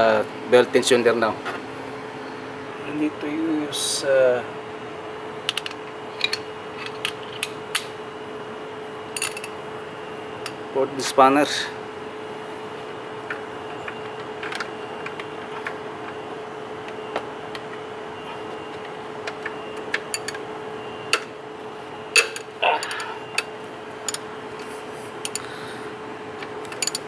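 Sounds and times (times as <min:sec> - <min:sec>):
faint steady hum: 0:00.0 - 0:27.0
spanner clicking on metal bolt: 0:25.2 - 0:25.5, 0:26.7 - 0:27.0.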